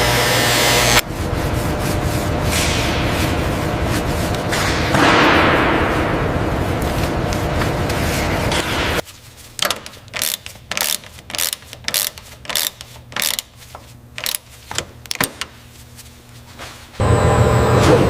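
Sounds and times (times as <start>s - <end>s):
loud steady noise: 0.0s - 9.0s.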